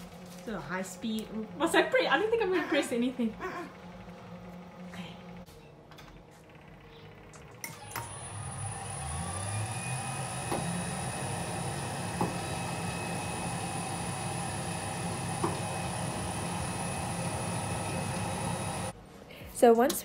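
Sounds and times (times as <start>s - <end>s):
electric mixer motor whining: 7.4s - 18.9s.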